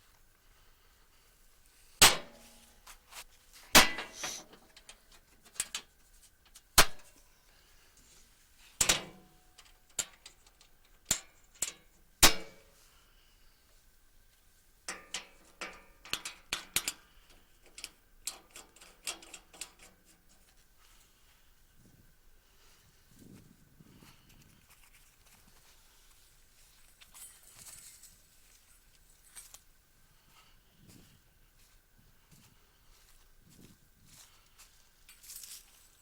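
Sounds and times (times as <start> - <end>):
metal tools knocking and clanking: 14.9 - 17.0
light clicks and clacks: 14.9 - 20.6.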